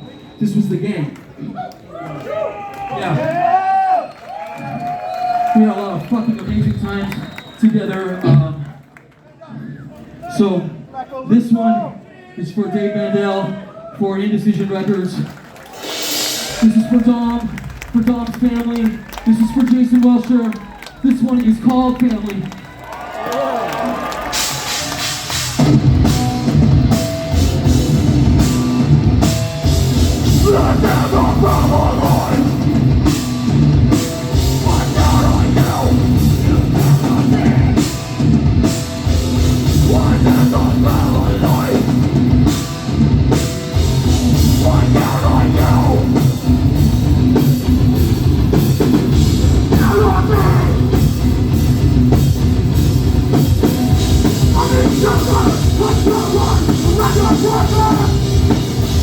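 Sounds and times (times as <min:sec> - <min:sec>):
heavy rock band playing live: 0:24.3 - 0:59.0.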